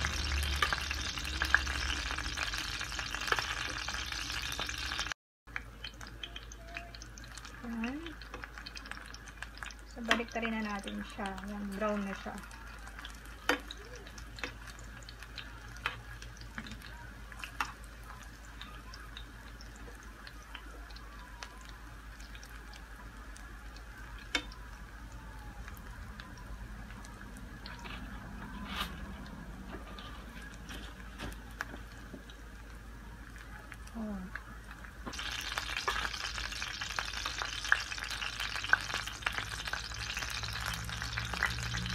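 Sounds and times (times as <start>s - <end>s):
fishballs sizzling in oil: 0.0s - 41.9s.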